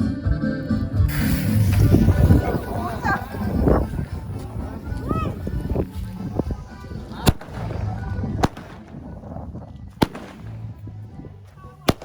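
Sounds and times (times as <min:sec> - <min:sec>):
firecrackers banging: 0:01.1 - 0:09.4, 0:10.0 - 0:10.9.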